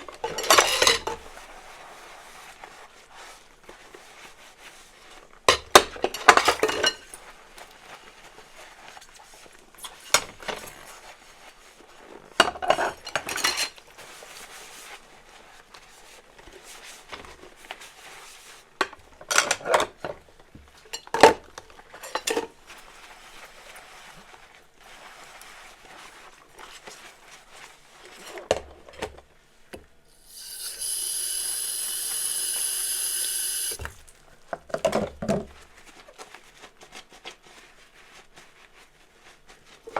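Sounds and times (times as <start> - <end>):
dishes and cutlery clinking: 0.2 - 1.3, 5.5 - 7.1
tap running: 30.1 - 34.0.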